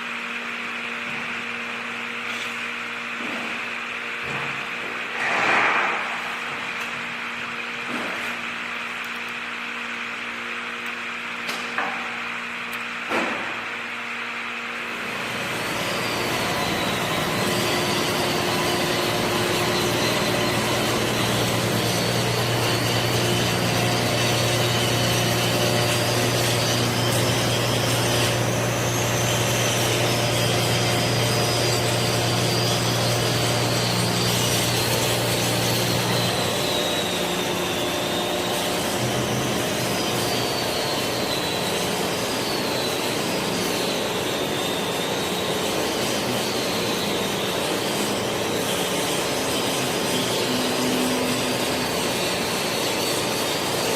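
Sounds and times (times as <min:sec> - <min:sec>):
welding hiss: 0:15.0 - 0:53.9.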